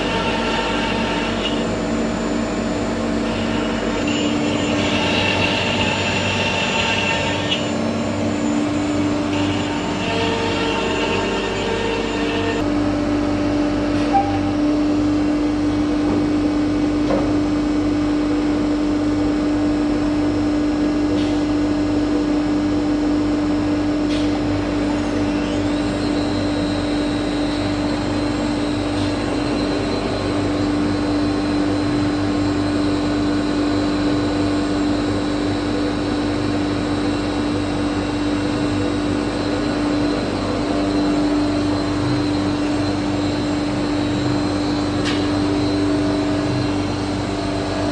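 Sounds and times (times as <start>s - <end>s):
thin high whine: 0.0s - 12.6s, 25.0s - 47.9s
cnc router hum and whine: 0.0s - 47.9s.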